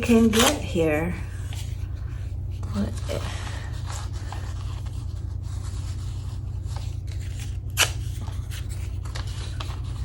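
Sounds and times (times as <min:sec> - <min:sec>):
paper ripping: 0:00.0 - 0:00.8, 0:03.8 - 0:10.0
paper rustling: 0:00.0 - 0:10.0
steady low hum: 0:00.0 - 0:10.0.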